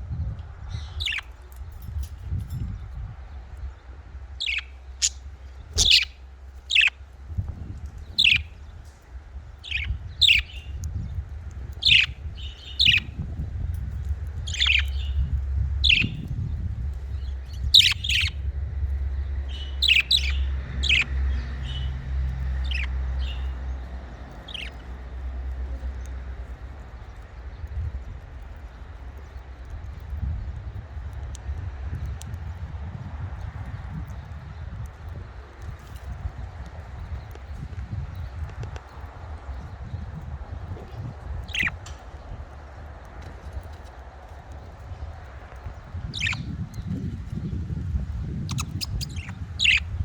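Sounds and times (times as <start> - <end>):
steady low rumble: 0.0 - 50.0
budgerigars chirping: 0.8 - 1.3, 4.4 - 7.0, 8.1 - 8.6, 9.6 - 10.8, 11.7 - 13.2, 14.4 - 16.3, 17.2 - 18.4, 19.5 - 25.1, 41.4 - 41.8, 46.1 - 46.9, 48.4 - 50.0.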